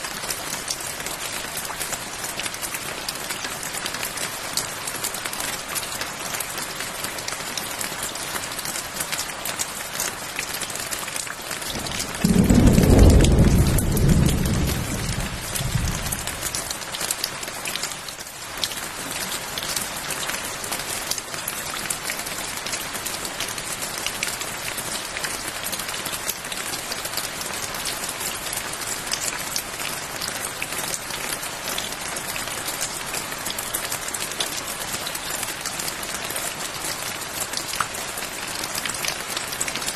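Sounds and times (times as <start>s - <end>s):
steady rain falling: 0.0s - 39.9s
thunder rolling: 11.8s - 16.6s.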